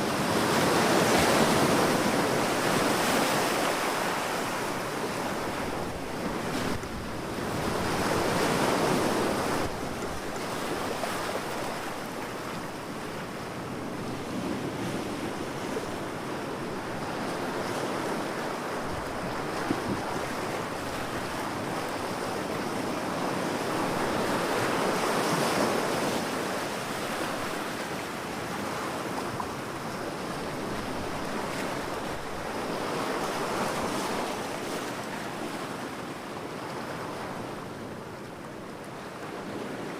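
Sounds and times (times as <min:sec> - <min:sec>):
waves washing ashore: 0:00.0 - 0:39.9.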